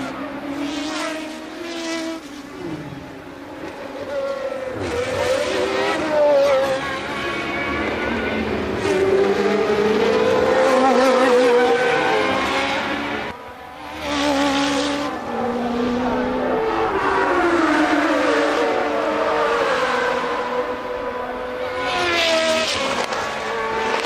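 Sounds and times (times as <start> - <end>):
race car engines: 0.0 - 24.0.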